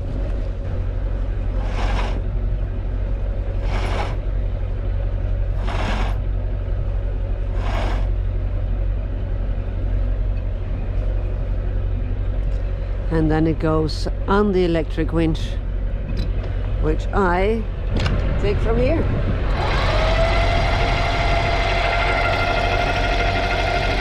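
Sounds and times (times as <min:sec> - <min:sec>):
boat engine running: 0:00.0 - 0:24.0
rushing swishes: 0:03.6 - 0:04.2, 0:07.5 - 0:08.1.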